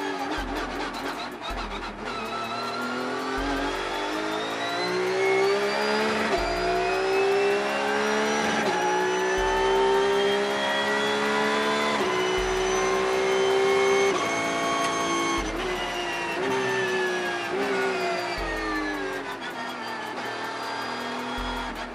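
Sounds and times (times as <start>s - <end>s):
race car engine accelerating: 0.0s - 21.9s.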